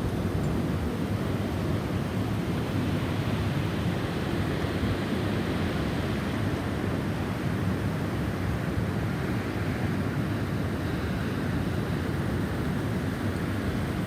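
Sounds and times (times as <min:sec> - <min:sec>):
snowstorm wind blowing: 0:00.0 - 0:14.0.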